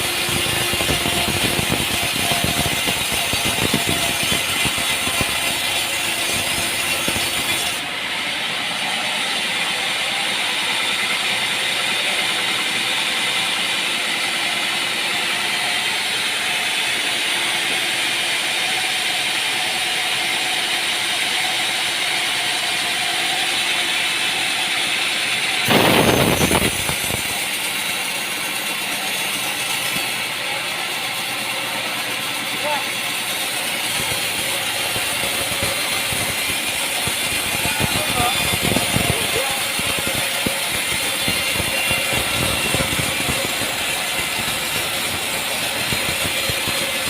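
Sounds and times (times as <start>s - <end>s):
sawmill machinery running: 0.0s - 47.0s.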